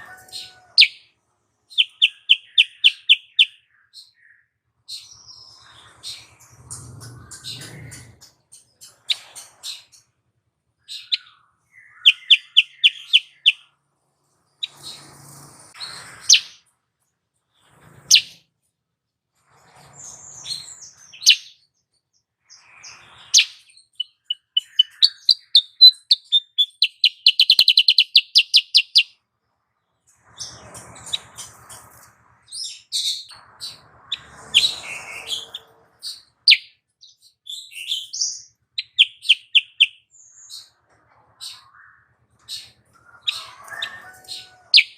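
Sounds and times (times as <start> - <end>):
bird chirping and trilling: 0.0 - 1.1, 1.7 - 10.1, 10.8 - 13.8, 14.5 - 16.6, 17.5 - 18.4, 20.1 - 21.7, 22.5 - 29.2, 30.3 - 40.8, 41.4 - 44.9.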